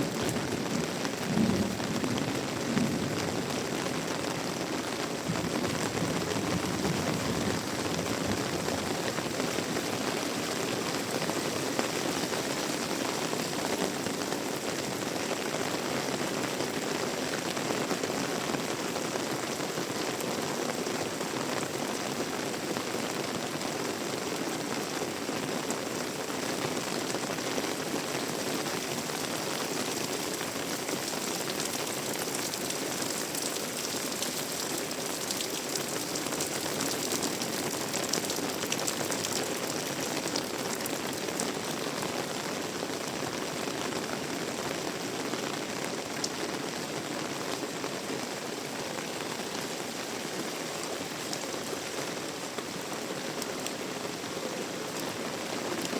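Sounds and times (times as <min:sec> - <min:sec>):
heavy rain hissing: 0:00.0 - 0:55.8
close raindrop hits: 0:05.0 - 0:15.1, 0:26.4 - 0:42.0.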